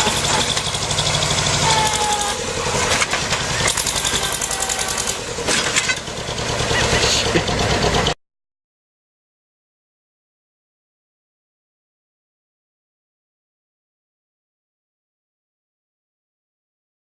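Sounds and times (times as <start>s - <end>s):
heavy vehicle engine running hard: 0.0s - 8.2s
faint voices: 1.6s - 2.9s, 3.6s - 5.2s, 6.6s - 7.6s.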